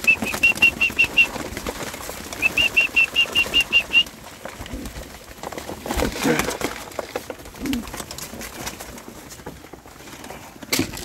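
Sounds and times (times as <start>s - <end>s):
bird peeping: 0.0s - 1.4s, 2.4s - 4.0s.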